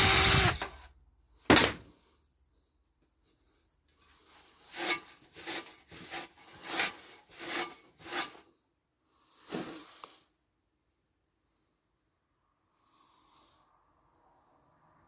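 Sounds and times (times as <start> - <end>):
hand scrubbing metal: 4.6 - 8.5.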